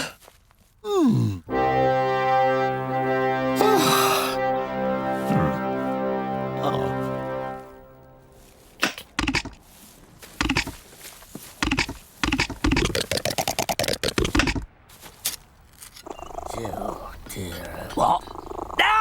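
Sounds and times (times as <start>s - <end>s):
sharp knocks and clatters: 8.8s - 9.6s, 10.4s - 10.8s, 11.6s - 14.7s.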